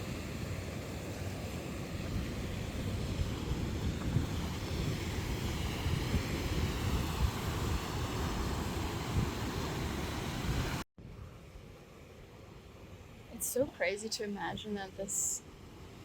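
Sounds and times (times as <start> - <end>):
wind buffeting microphone: 1.9 - 11.4.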